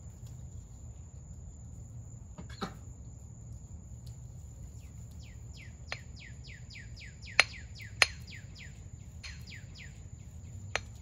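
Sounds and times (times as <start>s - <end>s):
songbird chirping: 4.0s - 11.0s.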